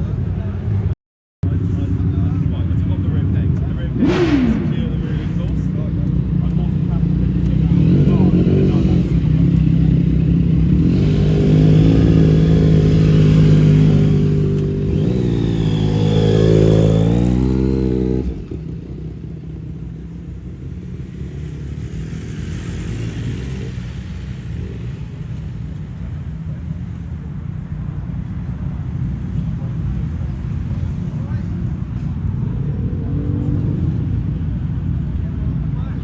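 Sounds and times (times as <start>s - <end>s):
low engine rumble: 0.0s - 36.0s
vehicle engine revving: 3.6s - 26.2s.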